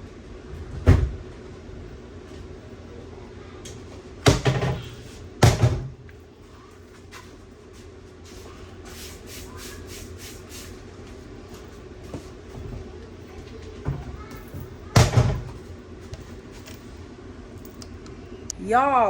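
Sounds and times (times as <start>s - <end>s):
steady low hum: 0.0s - 19.0s
door banging shut: 4.2s - 6.0s, 14.9s - 15.6s.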